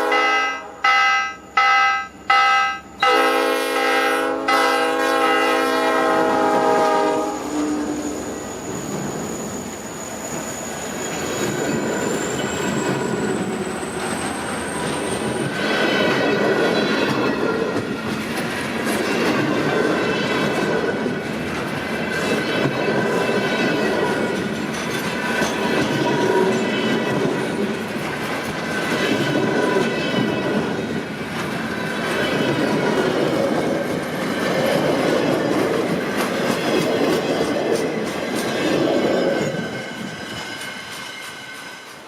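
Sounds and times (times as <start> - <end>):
locomotive chime horn blasts: 0.0 - 8.2
train rumbling past: 0.0 - 42.0
thin wheel squeal: 7.9 - 15.2
wheels clattering on rails: 10.2 - 42.0.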